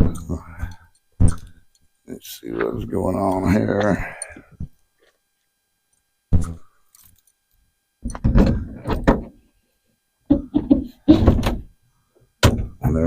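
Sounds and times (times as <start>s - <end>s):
container lids clunking and creaking: 8.0s - 9.4s, 10.3s - 11.7s.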